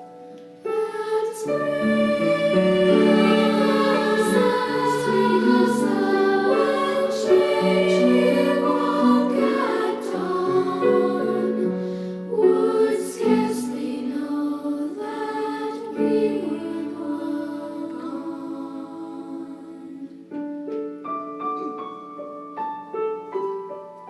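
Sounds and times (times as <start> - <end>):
treble choir singing: 0.0 - 20.6.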